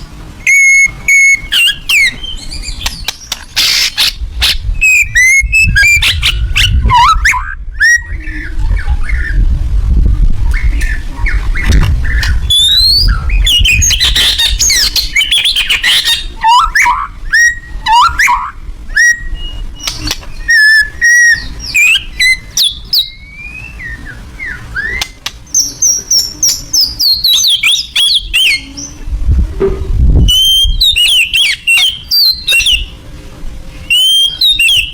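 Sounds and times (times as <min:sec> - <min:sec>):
bird singing whistled song: 0:00.4 - 0:09.4, 0:10.5 - 0:29.0, 0:30.2 - 0:33.0, 0:33.8 - 0:34.9
low rumble: 0:04.1 - 0:15.2, 0:29.0 - 0:30.8.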